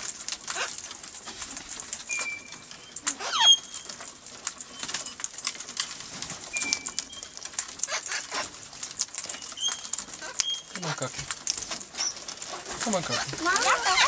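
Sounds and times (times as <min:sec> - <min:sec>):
parrot whistles: 0:02.1 - 0:03.8
parrot squawking: 0:03.1 - 0:03.8, 0:09.4 - 0:11.1, 0:13.0 - 0:14.0.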